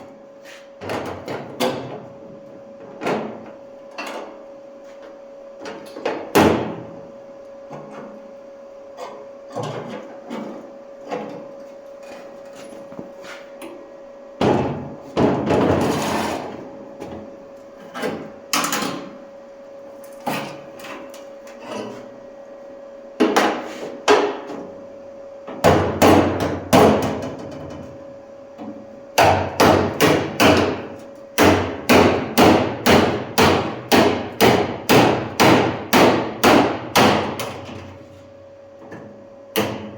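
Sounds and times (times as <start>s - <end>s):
steady hum: 0.0s - 39.9s
hammer on sheet metal: 25.6s - 27.2s, 29.2s - 30.8s, 31.4s - 37.5s.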